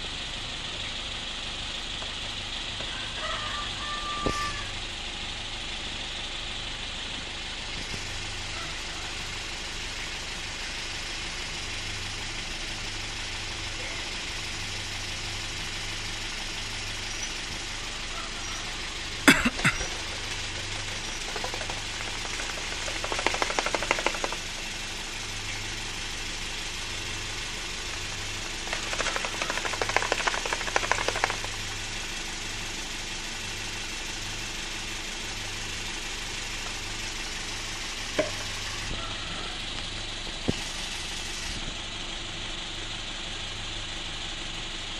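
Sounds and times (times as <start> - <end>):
car engine idling: 0.0 - 44.9
engine rattling: 0.0 - 44.9.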